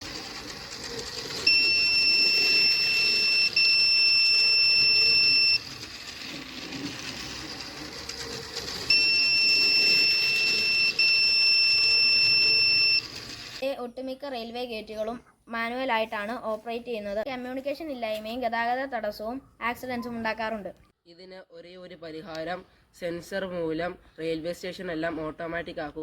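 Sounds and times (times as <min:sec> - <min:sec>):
high-pitched electronic buzzer beeps: 0:01.5 - 0:05.6, 0:08.9 - 0:13.1.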